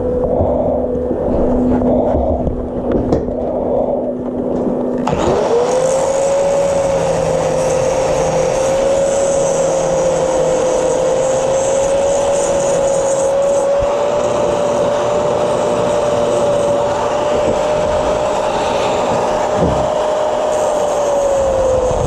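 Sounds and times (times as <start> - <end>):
angle grinder whine: 0.0 - 22.0
grinding down a weld: 0.0 - 22.0
low hum: 0.0 - 22.0.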